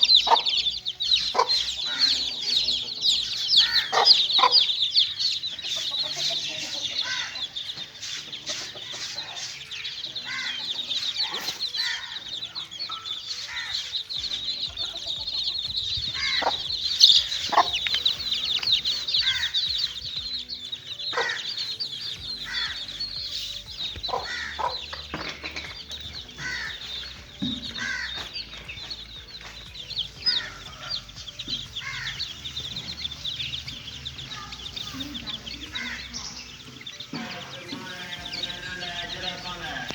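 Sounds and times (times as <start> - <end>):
lower falling chick calls: 0.0 - 25.1
chicks peeping: 0.0 - 39.9.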